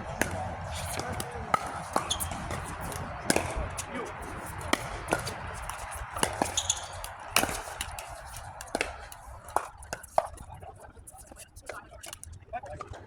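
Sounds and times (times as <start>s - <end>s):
ball bouncing on court: 0.0s - 10.3s
paddles hitting plastic ball: 0.0s - 10.4s.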